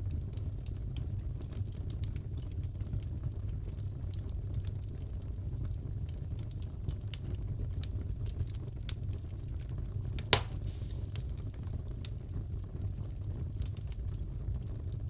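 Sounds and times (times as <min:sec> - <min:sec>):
wood fire crackling: 0:00.0 - 0:15.0
loud pop of fire: 0:10.2 - 0:11.6.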